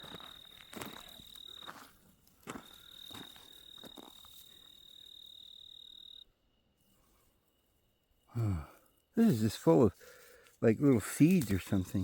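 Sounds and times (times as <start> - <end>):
insect trilling: 2.6 - 6.3.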